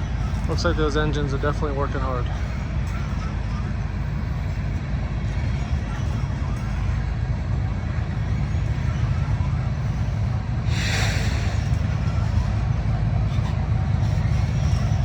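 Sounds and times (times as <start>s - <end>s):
diesel locomotives working hard: 0.0s - 15.0s
freight train rumbling past: 0.0s - 15.0s
short hiss: 10.7s - 11.7s.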